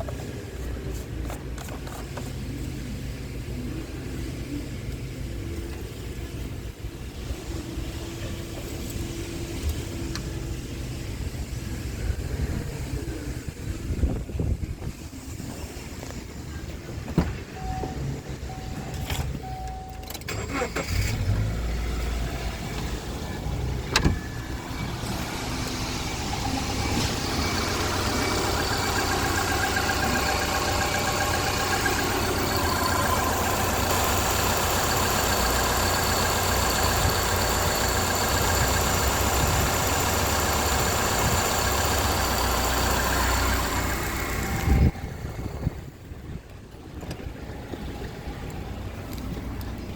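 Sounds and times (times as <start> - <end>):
car engine running: 20.3 - 48.1.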